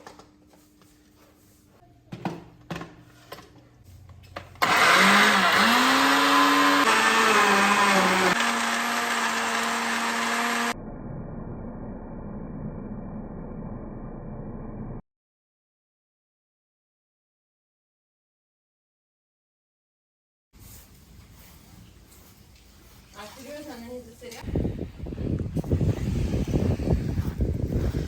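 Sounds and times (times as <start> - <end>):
high-speed electric motor whining: 4.6 - 10.8.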